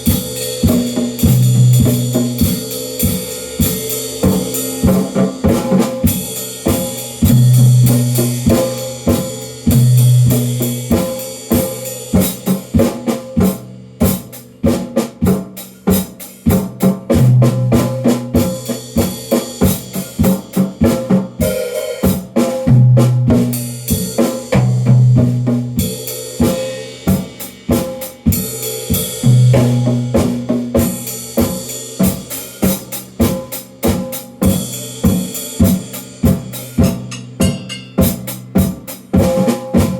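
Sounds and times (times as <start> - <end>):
cymbal wash: 0.0 - 12.7
held low drum notes: 0.0 - 13.8, 28.4 - 31.0
snare and tom hits: 35.6 - 39.9.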